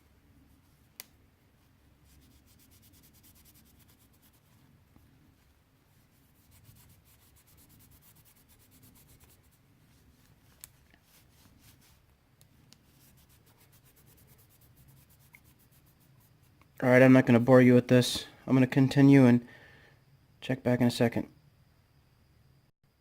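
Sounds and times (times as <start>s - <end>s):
hand rubbing polish on metal: 1.9s - 12.1s, 12.8s - 16.7s.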